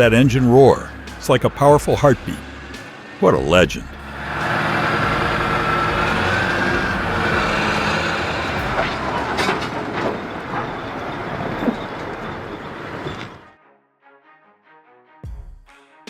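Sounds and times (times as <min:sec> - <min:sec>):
diesel engine running hard: 0:00.0 - 0:13.4
steady whine: 0:00.0 - 0:13.5
metallic clanks: 0:03.9 - 0:13.5.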